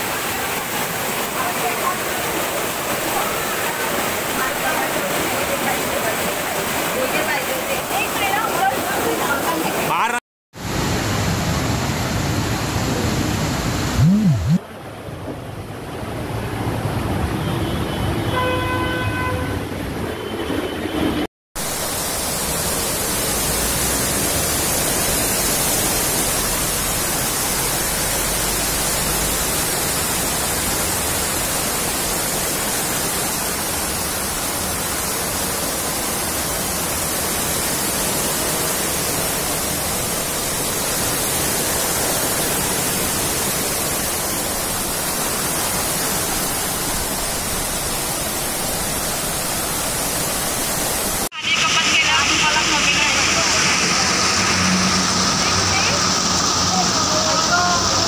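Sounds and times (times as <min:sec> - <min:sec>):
heavy rain pouring: 0:00.0 - 0:17.3, 0:21.6 - 0:58.0
vehicle horn: 0:17.4 - 0:21.2.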